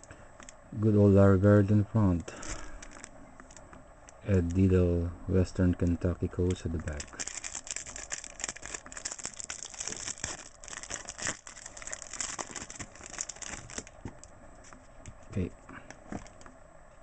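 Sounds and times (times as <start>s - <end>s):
wrapper and cards crinkling: 2.4s - 4.7s, 6.4s - 14.3s.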